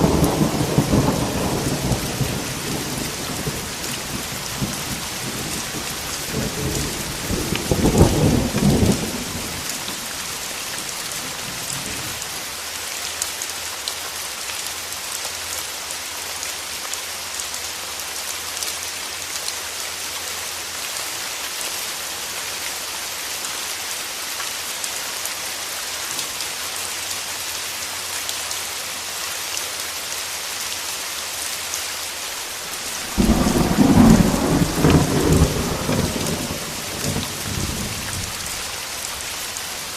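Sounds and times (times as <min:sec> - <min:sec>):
thunder rumbling: 0:00.0 - 0:12.2, 0:32.7 - 0:38.8
steady rain: 0:00.0 - 0:39.9.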